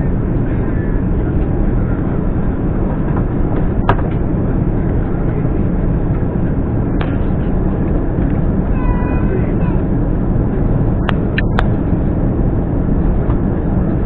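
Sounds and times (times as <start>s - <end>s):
aircraft cabin rumble: 0.0s - 14.0s.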